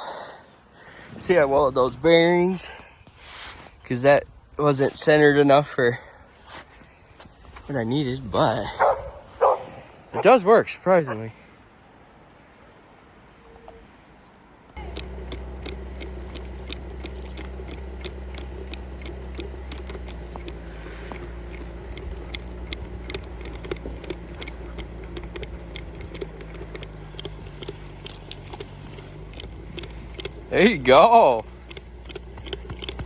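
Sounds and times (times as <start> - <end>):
irregular clicks and crunches: 14.8 - 33.0
motorcycle engine running: 14.8 - 33.0.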